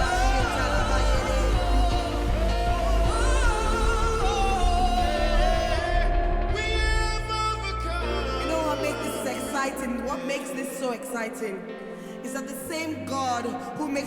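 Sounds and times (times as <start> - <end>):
band with heavy bass: 0.0 - 9.4
person singing: 0.0 - 14.0.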